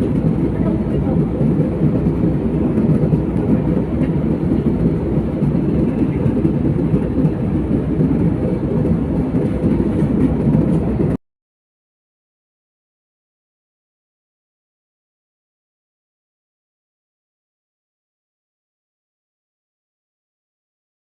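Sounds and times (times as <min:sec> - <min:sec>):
airplane cabin engine rumble: 0:00.0 - 0:11.2.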